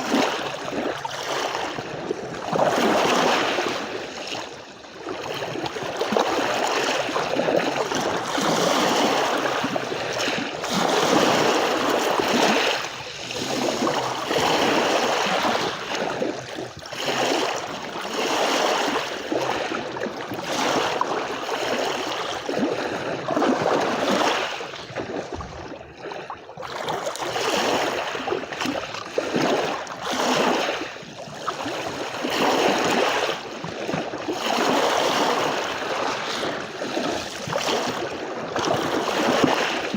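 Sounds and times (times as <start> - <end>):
sea waves washing onto shore: 0.0 - 25.5.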